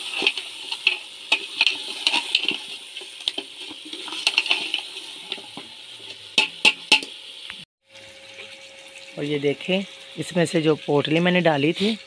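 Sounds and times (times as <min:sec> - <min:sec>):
metal spoon scraping pot: 0:00.0 - 0:07.1
meat frying and bubbling: 0:00.0 - 0:12.0.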